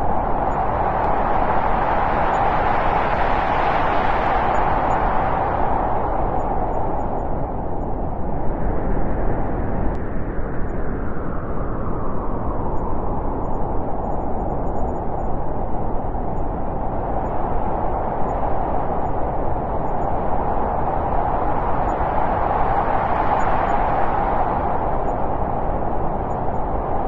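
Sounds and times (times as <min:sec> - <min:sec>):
wind blowing: 0:00.0 - 0:27.0.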